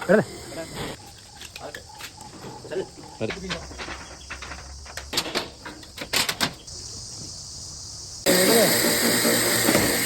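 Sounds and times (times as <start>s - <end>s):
loud steady hiss: 6.6s - 10.0s.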